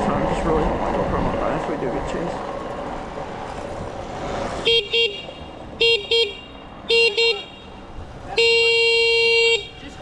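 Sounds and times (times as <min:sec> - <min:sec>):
vehicle horn honking: 0:04.6 - 0:10.0.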